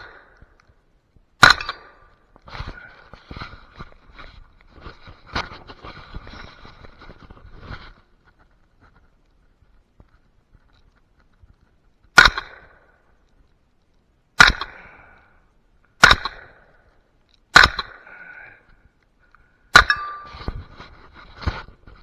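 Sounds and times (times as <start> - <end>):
rifle shots: 1.4 - 2.1, 12.2 - 12.9, 14.4 - 15.0, 16.0 - 16.7, 17.5 - 18.1.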